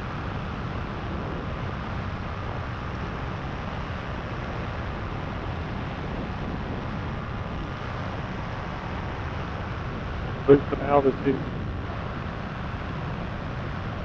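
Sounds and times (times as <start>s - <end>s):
paramotor engine drone: 0.0s - 14.0s
wind rushing on microphone: 0.0s - 14.0s.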